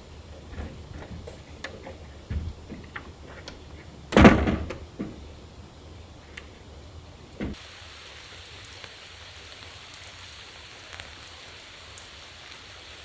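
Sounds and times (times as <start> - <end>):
steady rain falling: 0.0 - 13.0
soft thump: 2.3 - 3.4.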